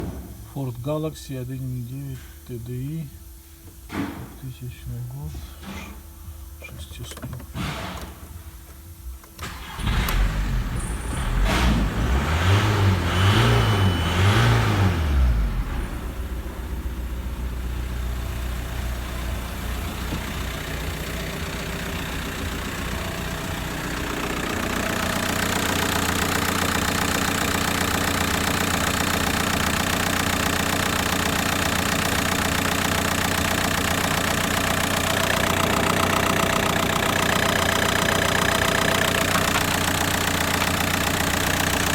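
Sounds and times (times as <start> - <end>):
diesel engine idling: 9.4 - 41.9
diesel engine starting and revving: 9.4 - 41.9.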